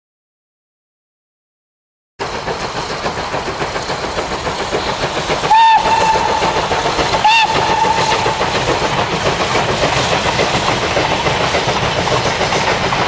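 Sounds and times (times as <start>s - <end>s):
steam locomotive running: 2.2s - 13.0s
steam whistle: 5.4s - 8.6s.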